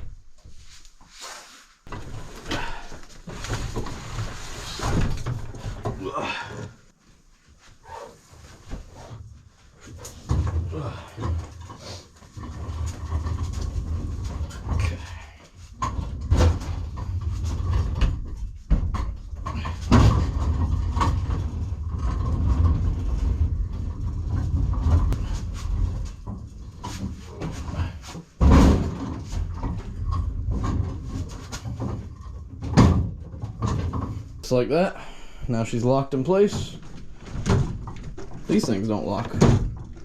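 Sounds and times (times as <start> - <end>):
cabinet casters rolling: 9.8 - 34.6, 35.6 - 40.0
cabinet knocks and bumps: 15.8 - 34.3.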